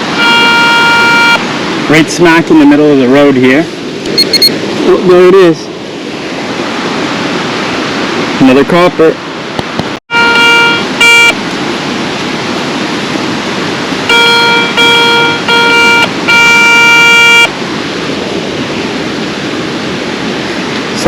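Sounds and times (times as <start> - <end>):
falling water rushing: 0.0 - 21.0
metal detector beeps: 0.2 - 1.4, 4.1 - 4.6, 10.1 - 11.4, 14.1 - 17.5.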